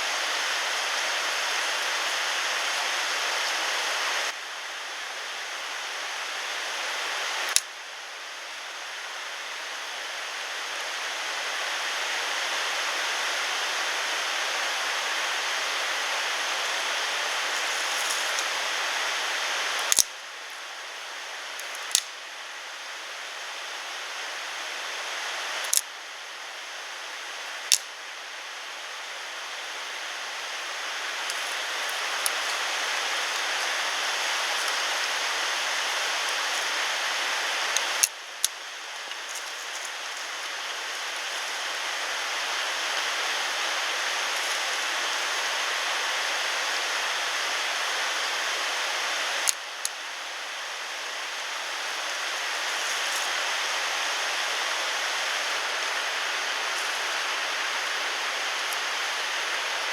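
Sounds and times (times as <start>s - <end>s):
rushing water: 28.4s - 59.9s.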